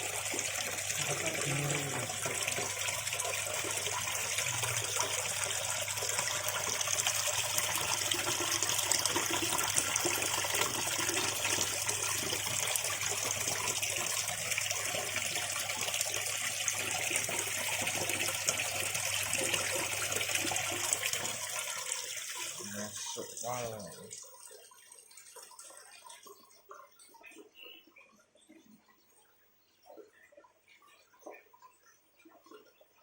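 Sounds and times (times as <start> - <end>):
water running and splashing: 0.0 - 33.0.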